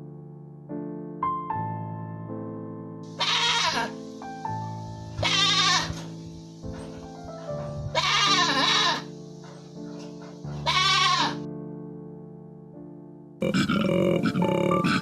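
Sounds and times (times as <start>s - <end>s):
loud wavering bleats: 3.2s - 3.9s, 5.2s - 6.0s, 7.9s - 9.0s, 10.6s - 11.4s, 13.4s - 15.0s
keyboard music: 13.4s - 15.0s.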